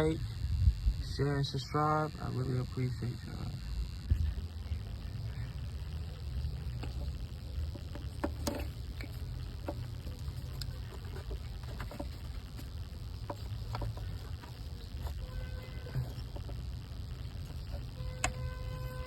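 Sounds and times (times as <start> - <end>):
steady low rumble: 0.0 - 19.0
hand tools clicking and knocking: 6.0 - 19.0.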